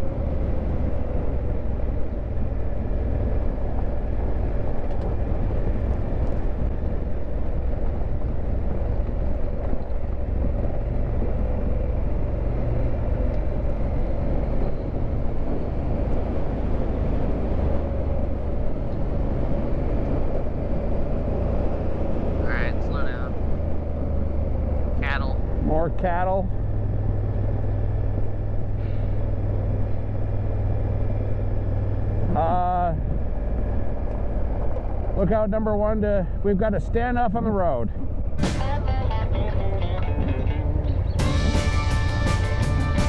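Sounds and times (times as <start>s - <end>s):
motorcycle engine running: 0.0s - 15.7s, 38.1s - 43.0s
wind and road noise: 0.0s - 43.0s.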